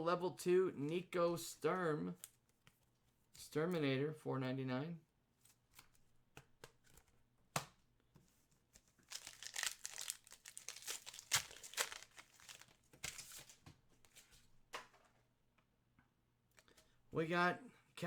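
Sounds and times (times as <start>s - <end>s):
plastic wrapper crinkling and tearing: 8.8s - 13.6s
cards clicking: 9.1s - 13.6s.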